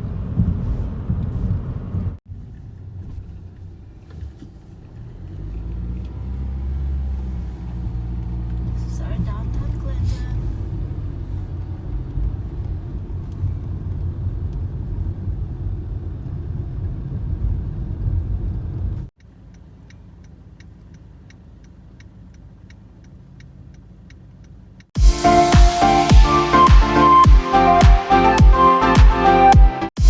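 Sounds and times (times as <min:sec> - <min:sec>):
car road and engine rumble: 0:00.0 - 0:28.9
light even ticking: 0:19.2 - 0:24.9.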